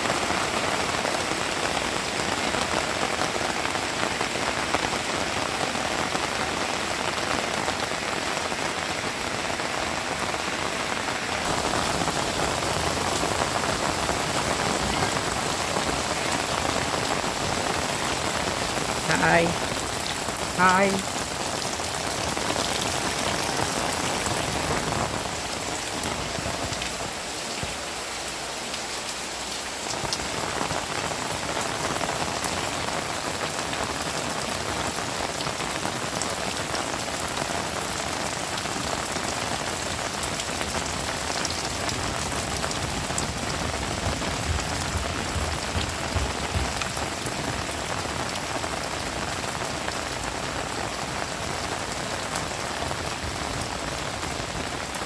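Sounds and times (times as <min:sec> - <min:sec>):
heavy rain hissing: 0:00.1 - 0:55.0
raindrop ticks: 0:41.3 - 0:48.5.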